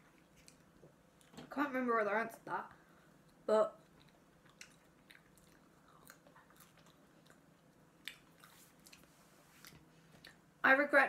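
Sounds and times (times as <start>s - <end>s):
faint chewing: 0.0s - 1.3s, 2.9s - 10.5s.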